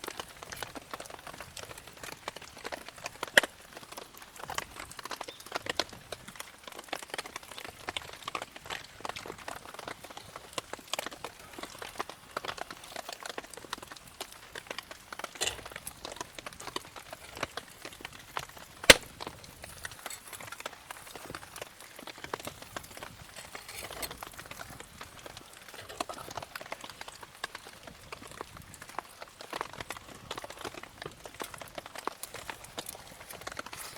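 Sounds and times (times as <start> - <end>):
campfire crackling: 0.0 - 33.9
loud sharp fire pop: 18.9 - 19.2.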